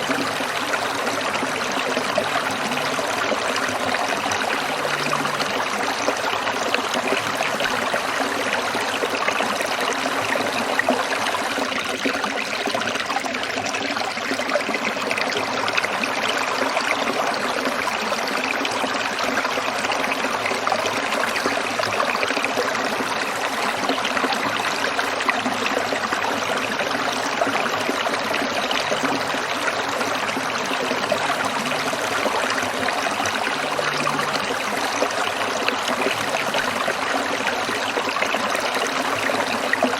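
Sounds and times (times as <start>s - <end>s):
stream water splashing over stones: 0.0s - 39.9s.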